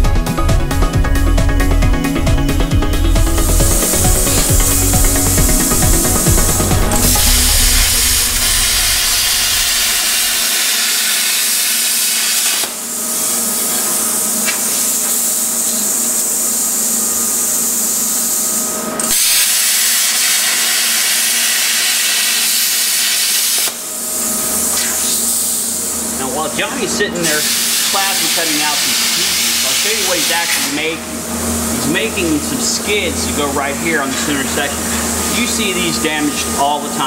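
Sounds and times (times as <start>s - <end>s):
plasma cutter hissing: 2.5s - 23.8s, 24.6s - 25.7s, 27.2s - 31.0s.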